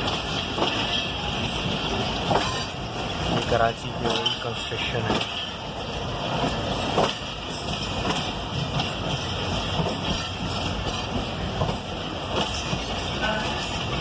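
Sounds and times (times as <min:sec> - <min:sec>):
train rumbling and rattling: 0:00.0 - 0:14.0.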